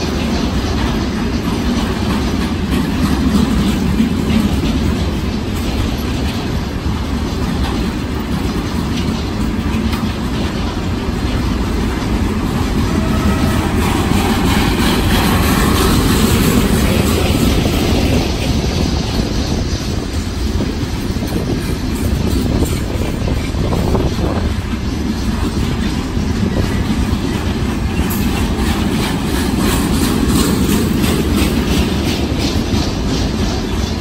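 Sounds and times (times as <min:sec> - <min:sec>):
freight train rumbling: 0:00.0 - 0:34.0.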